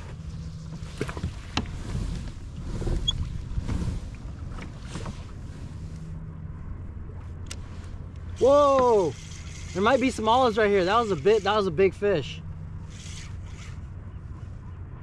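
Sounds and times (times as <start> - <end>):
water rumbling against hull: 0.0 - 11.2.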